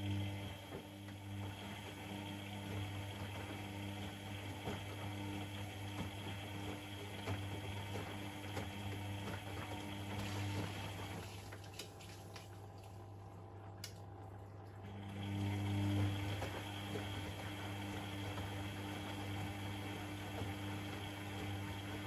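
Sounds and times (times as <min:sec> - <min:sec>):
pump humming: 0:00.0 - 0:13.6, 0:14.8 - 0:22.0
washing machine running: 0:00.0 - 0:22.0.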